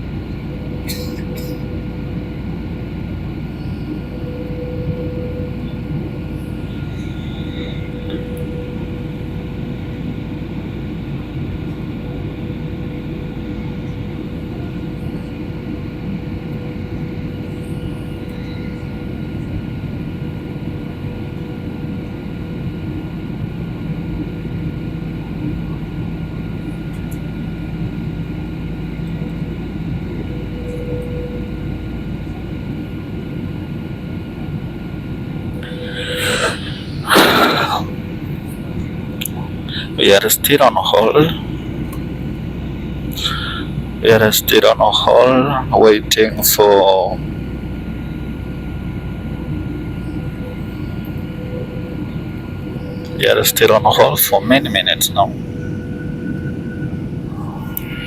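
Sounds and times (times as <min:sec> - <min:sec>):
airliner cabin engine drone: 0:00.0 - 0:58.0
constant whine: 0:00.0 - 0:58.0.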